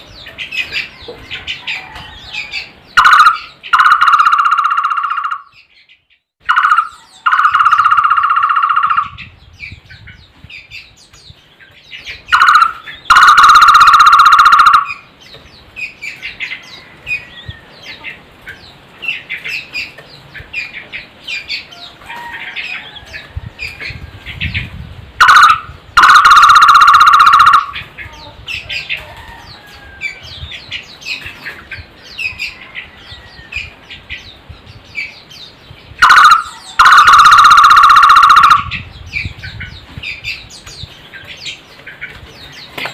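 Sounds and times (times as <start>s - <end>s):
barbet calling loudly: 3.0s - 5.6s, 6.4s - 9.3s, 12.3s - 15.0s, 25.2s - 28.0s, 36.0s - 38.9s.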